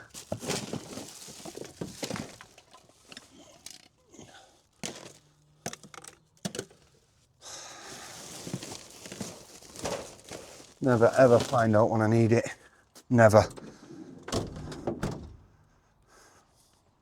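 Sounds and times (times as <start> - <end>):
plastic rustling: 0.0 - 4.0, 4.7 - 6.8, 7.7 - 12.3.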